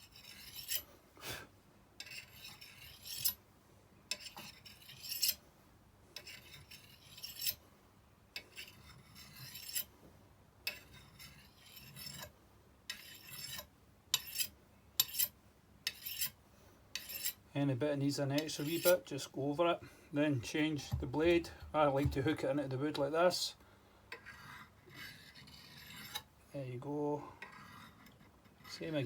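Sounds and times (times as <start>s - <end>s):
blade scraping on sharpening rod: 0.0s - 0.9s, 2.0s - 3.4s, 4.1s - 5.4s, 6.2s - 7.6s, 8.4s - 9.9s, 10.7s - 12.3s, 12.9s - 17.4s, 18.4s - 19.1s, 24.1s - 26.3s, 27.4s - 29.0s.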